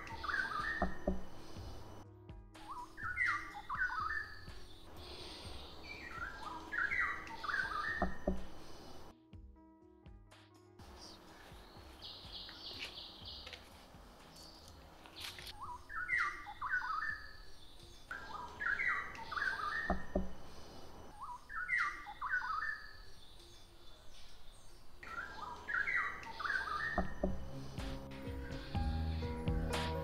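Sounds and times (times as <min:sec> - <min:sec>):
laughingthrushes calling: 0:00.0 - 0:02.0, 0:02.7 - 0:09.1, 0:15.2 - 0:29.2.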